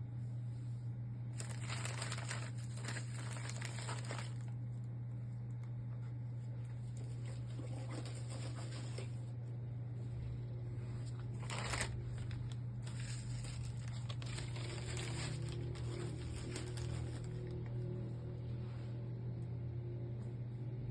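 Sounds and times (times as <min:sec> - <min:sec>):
steady low hum: 0:00.0 - 0:20.9
packaging rustling and crinkling: 0:01.4 - 0:04.6, 0:11.0 - 0:17.8.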